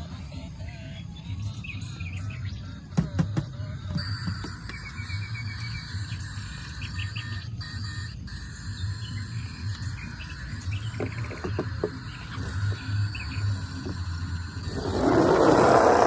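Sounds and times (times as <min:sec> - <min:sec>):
birds chirping: 0:04.7 - 0:07.6, 0:08.7 - 0:16.0
insects trilling: 0:04.8 - 0:16.0
pulsing low hum: 0:08.5 - 0:16.0.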